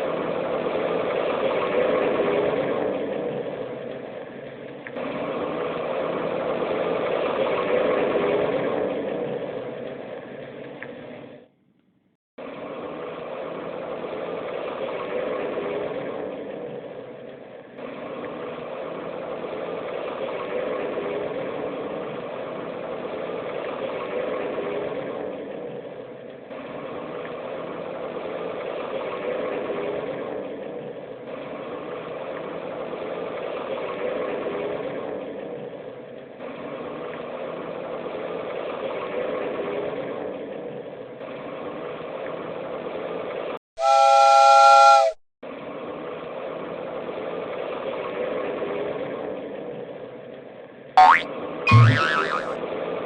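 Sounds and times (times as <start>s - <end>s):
cartoon engine running noise: 43.8s - 45.2s, 51.0s - 52.6s
steam train whistle blast: 43.8s - 45.2s.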